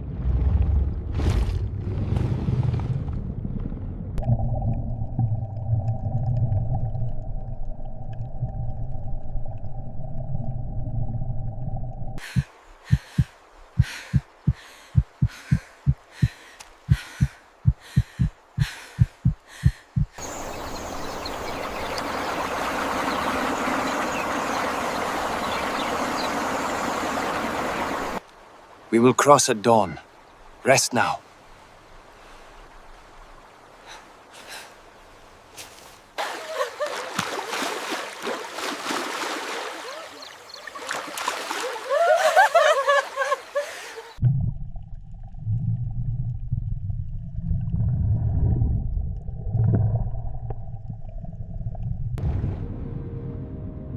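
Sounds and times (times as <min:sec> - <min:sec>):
heartbeat thumps: 0:12.2 - 0:20.2
river water splashing: 0:12.2 - 0:29.2, 0:30.0 - 0:44.2.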